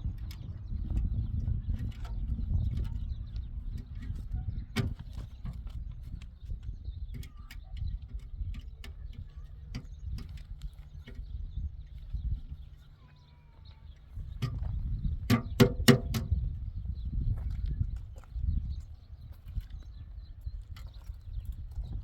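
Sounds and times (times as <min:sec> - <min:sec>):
sharp clicks and knocks: 0:00.0 - 0:12.7, 0:13.9 - 0:16.4
steady low rumble: 0:00.0 - 0:22.0.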